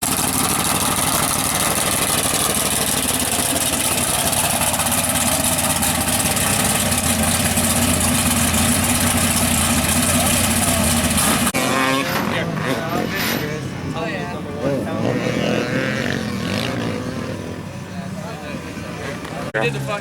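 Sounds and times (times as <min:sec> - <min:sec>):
truck engine idling: 0:00.0 - 0:11.6.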